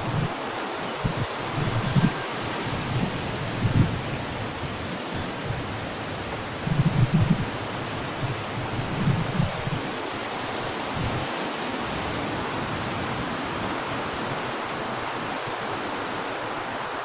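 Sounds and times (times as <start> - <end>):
steady rushing hiss: 0.0 - 17.0.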